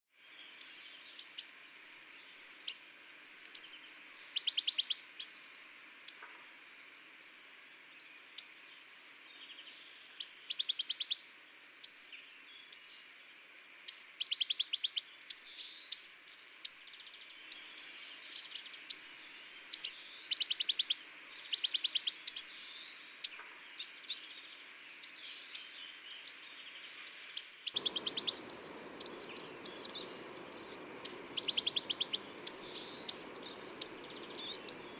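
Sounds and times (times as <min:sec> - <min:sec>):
songbirds chirping and calling: 0:16.9 - 0:34.9
rapid bird trills: 0:27.7 - 0:34.9
low steady hum: 0:27.8 - 0:34.9.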